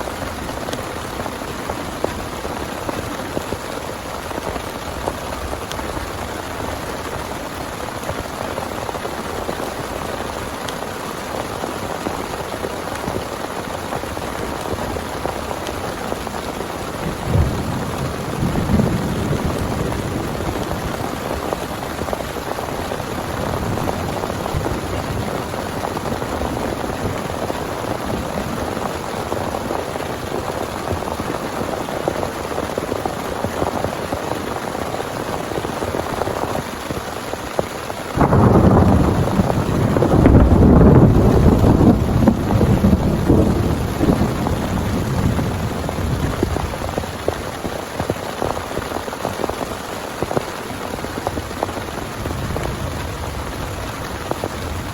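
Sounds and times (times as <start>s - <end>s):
heavy rain pouring: 0.0s - 54.9s
thunder clap and rumble: 14.1s - 31.8s, 38.2s - 49.6s, 50.5s - 54.9s.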